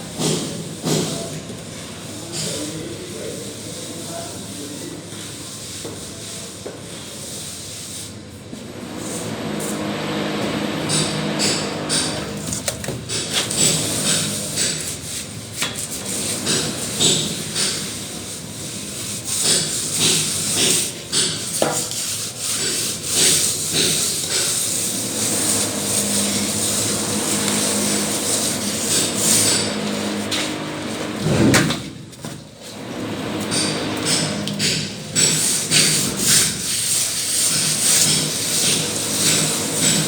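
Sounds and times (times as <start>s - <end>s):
trowel scraping mortar: 11.5s - 31.1s, 33.5s - 40.0s.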